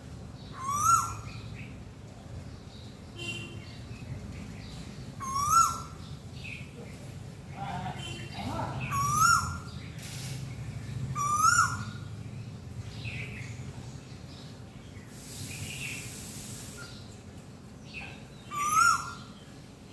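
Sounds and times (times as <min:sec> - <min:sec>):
bird whistled call: 0:00.6 - 0:01.3, 0:05.2 - 0:06.0, 0:08.9 - 0:09.7, 0:11.2 - 0:12.0, 0:15.2 - 0:17.0, 0:18.5 - 0:19.3.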